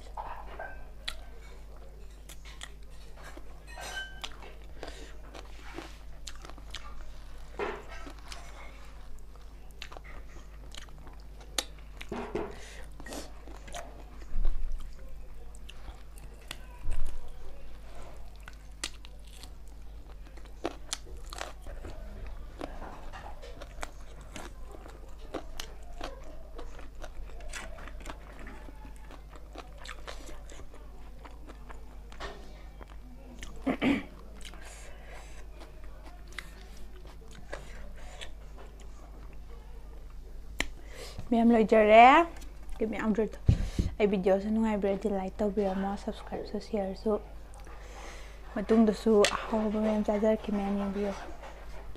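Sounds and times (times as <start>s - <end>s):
wet chewing and lip smacks: 1.0s - 3.5s, 4.2s - 7.3s, 7.9s - 12.1s, 18.2s - 33.6s, 47.4s - 47.8s.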